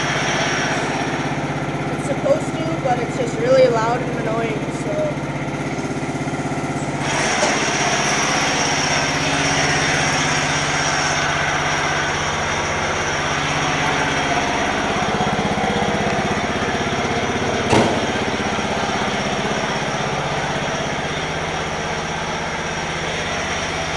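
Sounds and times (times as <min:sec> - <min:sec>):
harsh noise with high whine: 0:00.0 - 0:23.9
lawn tractor engine running: 0:00.0 - 0:23.9
sharp knock: 0:17.7 - 0:18.2.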